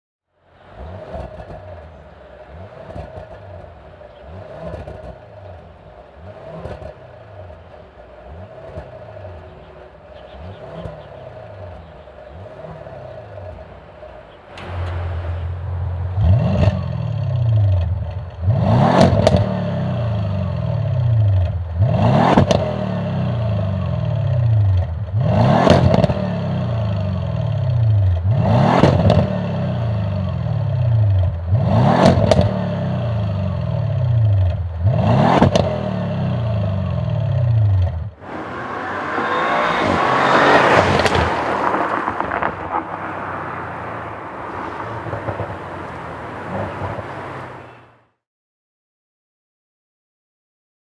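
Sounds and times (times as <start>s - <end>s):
car engine revving: 0.6s - 47.8s
rushing exhaust noise: 14.4s - 19.4s, 38.2s - 47.9s.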